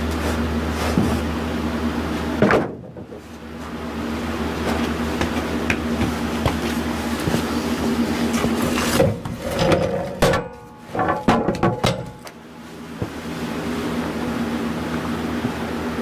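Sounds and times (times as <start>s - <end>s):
steady machine hum: 0.0s - 16.0s
wooden boards clattering: 2.4s - 3.3s, 8.4s - 12.3s.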